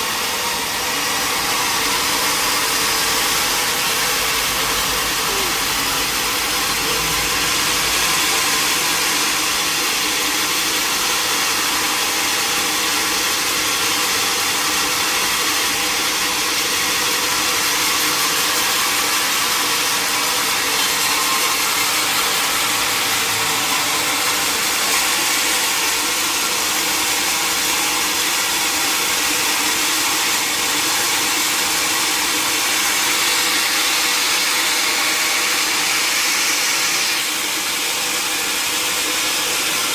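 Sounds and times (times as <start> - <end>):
sawmill machinery whirring: 0.0 - 39.9.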